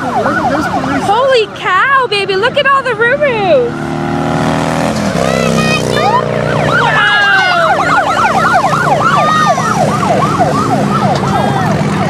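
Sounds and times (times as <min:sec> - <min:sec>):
police sirens yelping: 0:00.0 - 0:03.9, 0:04.9 - 0:12.0
vehicle engines running: 0:00.0 - 0:12.0.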